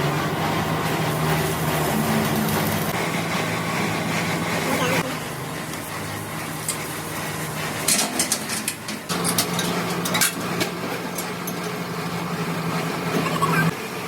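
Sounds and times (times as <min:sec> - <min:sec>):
running machine hum: 0:00.0 - 0:14.0
metal parts clinking: 0:07.9 - 0:10.4.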